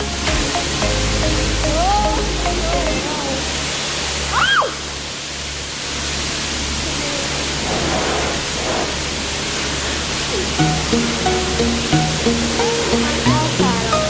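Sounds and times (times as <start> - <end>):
car wash rushing hiss: 3.6 - 10.6.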